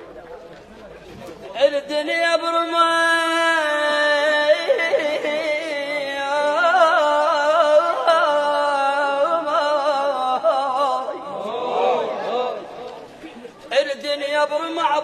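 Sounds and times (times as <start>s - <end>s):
person singing with vibrato: 1.6s - 12.8s.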